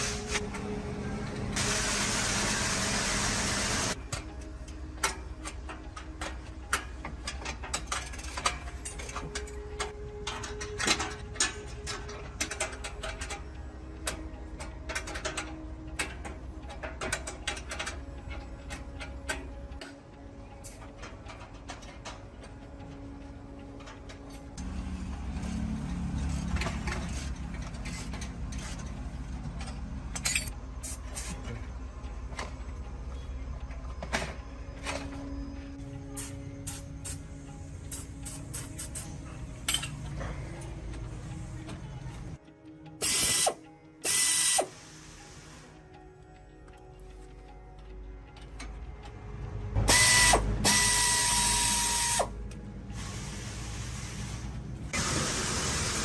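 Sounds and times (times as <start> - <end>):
engine starting and running: 0.0 - 4.1, 23.0 - 30.3, 48.4 - 56.0
hand tools clicking and knocking: 4.0 - 20.0.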